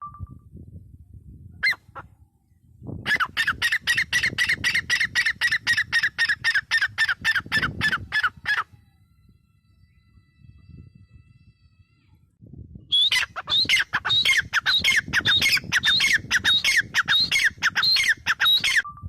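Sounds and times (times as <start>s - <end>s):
francolin calling: 12.9s - 18.9s.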